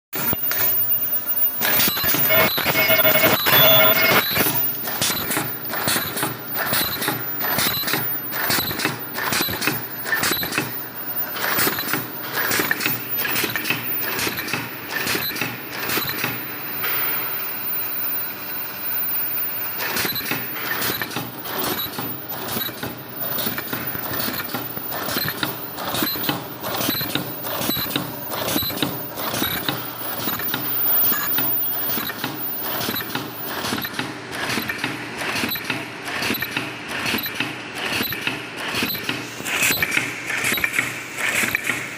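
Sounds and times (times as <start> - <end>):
machine clattering clicks and knocks: 1.6 - 17.0, 19.8 - 41.9.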